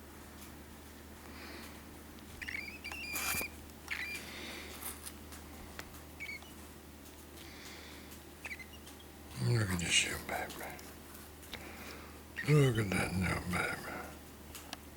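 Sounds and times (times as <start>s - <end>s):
birds scratching and rustling: 1.5s - 9.5s, 10.2s - 12.1s
high squeaky bird chirps: 2.4s - 4.3s, 6.2s - 6.6s, 8.4s - 9.2s.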